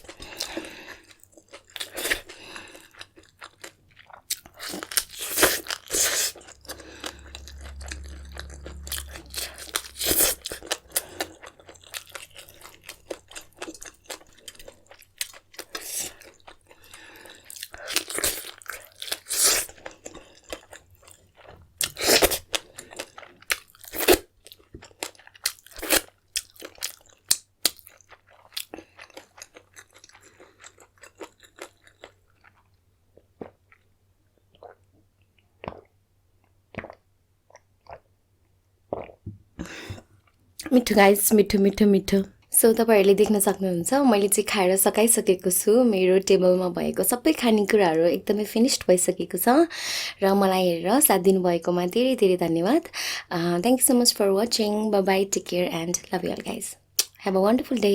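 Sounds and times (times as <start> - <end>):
chewing and crunching food: 0.0 - 39.2
wet mouth sounds: 4.1 - 12.0, 38.9 - 40.1.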